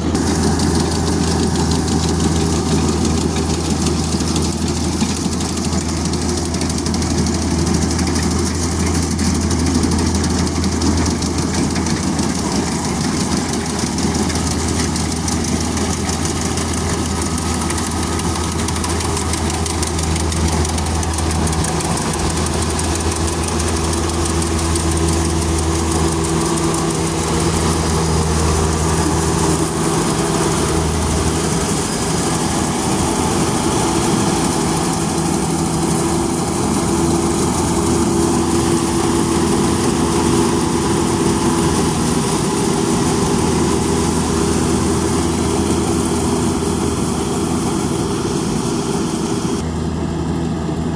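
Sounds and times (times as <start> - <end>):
farm machine engine running: 0.0 - 50.9
mechanical rattle: 10.3 - 38.9.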